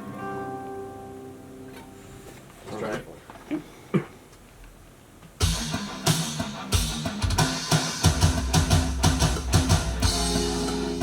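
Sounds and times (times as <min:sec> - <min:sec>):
drum kit beat: 0:05.4 - 0:11.0
electric guitar riff: 0:05.4 - 0:11.0.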